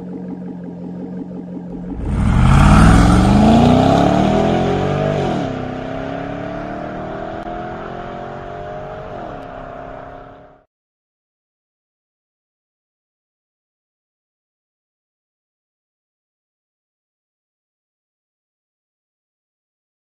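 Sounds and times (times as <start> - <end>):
car engine accelerating hard: 1.7 - 10.6.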